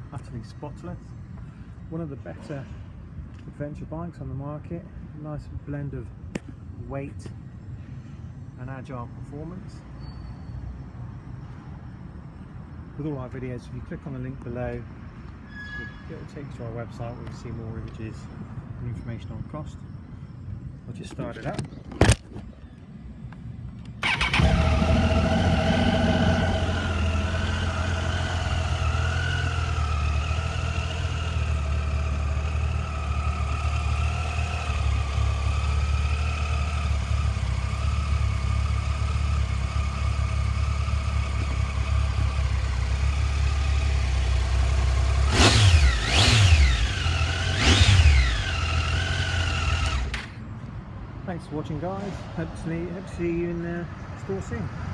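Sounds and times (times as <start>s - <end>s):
motorcycle engine starting and idling: 23.8s - 50.5s.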